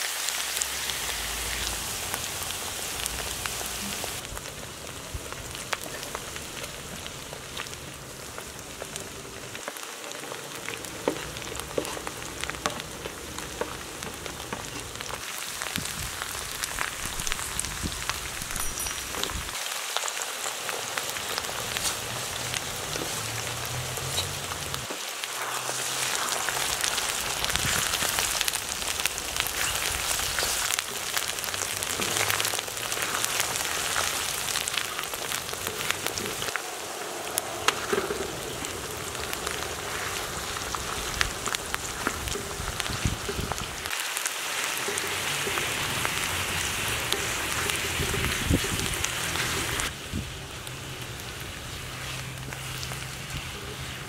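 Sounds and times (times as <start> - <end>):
oil sizzling with frying vegetables: 0.0 - 54.0
wooden spatula stirring: 10.2 - 15.1.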